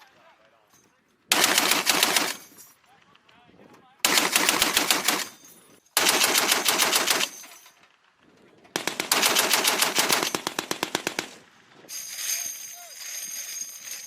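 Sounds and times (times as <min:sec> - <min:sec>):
heavy machine gun firing bursts: 0:01.3 - 0:02.5, 0:04.0 - 0:05.4, 0:06.0 - 0:07.4, 0:08.8 - 0:11.4.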